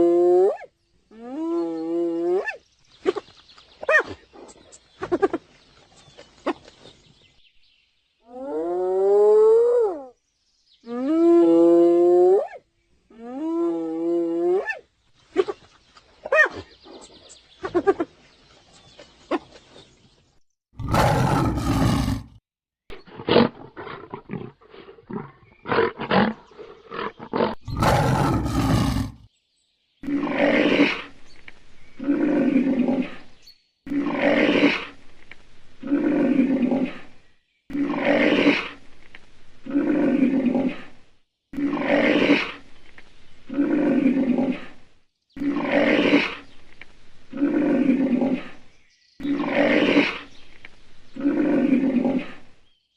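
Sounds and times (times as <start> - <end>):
animal roars: 20.8 - 22.4, 23.2 - 29.3, 30.0 - 31.2, 32.0 - 35.0, 35.8 - 38.8, 39.6 - 41.0, 41.6 - 42.6, 43.5 - 44.8, 45.4 - 46.5, 47.3 - 48.6, 49.2 - 50.3, 51.1 - 52.5.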